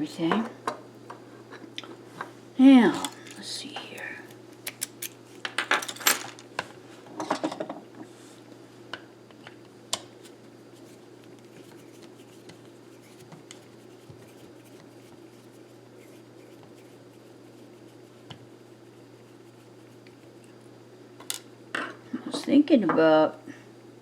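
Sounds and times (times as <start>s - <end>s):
small metal tools clinking: 2.9s - 3.5s, 4.7s - 6.4s.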